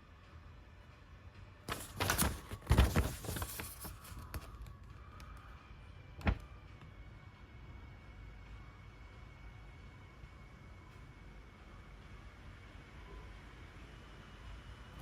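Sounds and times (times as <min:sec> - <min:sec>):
packaging rustling and clicks: 0:01.7 - 0:04.8.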